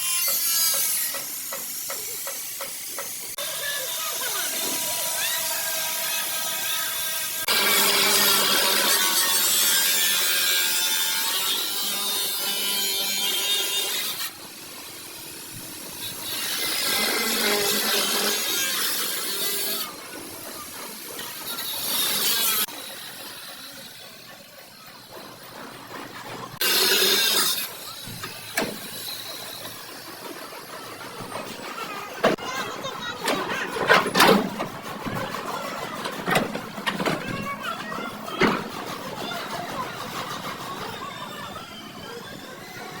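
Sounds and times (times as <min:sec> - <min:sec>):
tool rasping against car body: 0:33.3 - 0:38.8.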